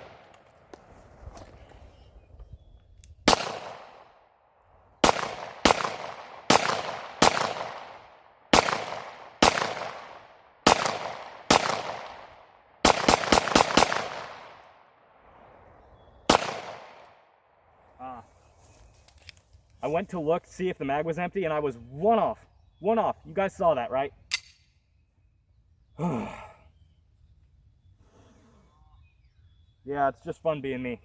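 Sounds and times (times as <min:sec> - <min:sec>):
gunshots ringing out: 0:03.3 - 0:04.2, 0:05.0 - 0:14.7, 0:16.3 - 0:17.1.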